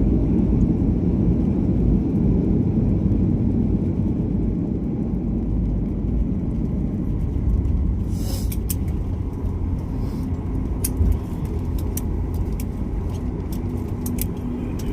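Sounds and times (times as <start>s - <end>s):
airliner cabin rumble: 0.0s - 14.9s
short rushing hiss: 8.1s - 8.6s
light rattling clicks: 8.4s - 14.9s.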